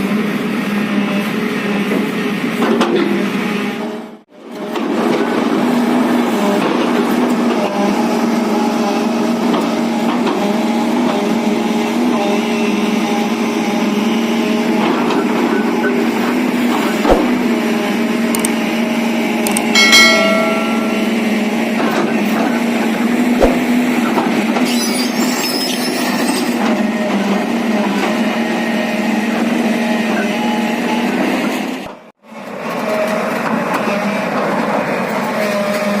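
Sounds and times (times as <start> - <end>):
excavator diesel engine running: 0.1 - 36.0
short metallic clang: 19.8 - 21.4
sharp knocks: 23.4 - 23.8.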